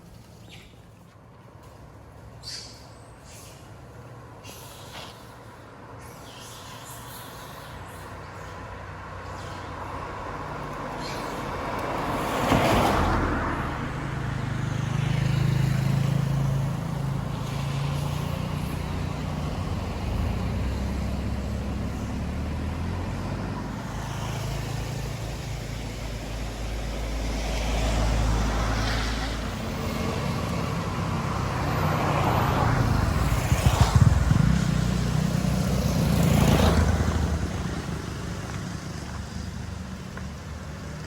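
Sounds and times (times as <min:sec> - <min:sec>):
wind noise rush: 0:32.6 - 0:35.2.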